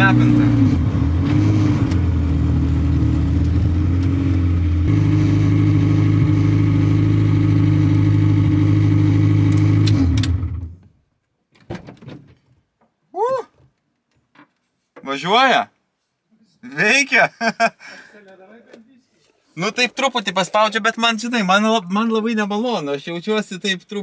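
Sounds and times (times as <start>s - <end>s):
car engine running: 0.0s - 10.8s.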